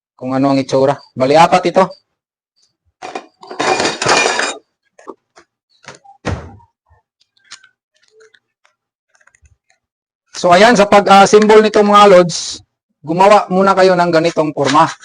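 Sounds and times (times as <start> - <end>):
pieces clattering together: 3.0 - 4.7
parts rattling: 3.0 - 5.2.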